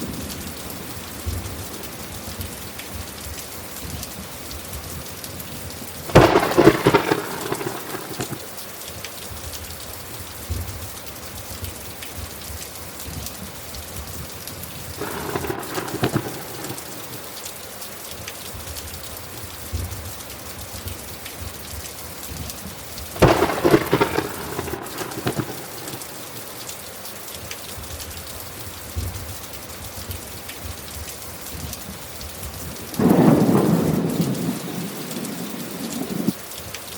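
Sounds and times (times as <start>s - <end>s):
steady rain: 0.0s - 36.9s
thunder rolling: 6.1s - 8.5s, 15.0s - 17.4s, 23.2s - 26.6s, 33.0s - 36.4s.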